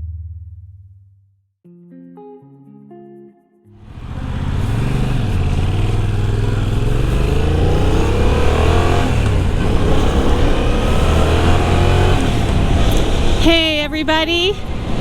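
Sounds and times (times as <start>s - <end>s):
motorcycle engine accelerating: 3.8s - 13.6s.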